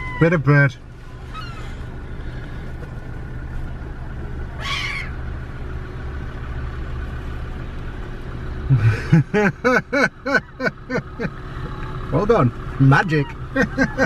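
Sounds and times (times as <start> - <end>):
seagull call: 0.0 - 0.4, 1.2 - 2.7, 4.5 - 5.3, 13.0 - 14.0
steady low rumble: 0.0 - 14.0.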